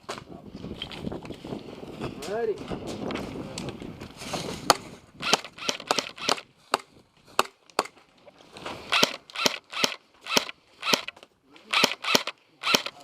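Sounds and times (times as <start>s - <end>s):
pistol shots popping: 5.2s - 6.8s.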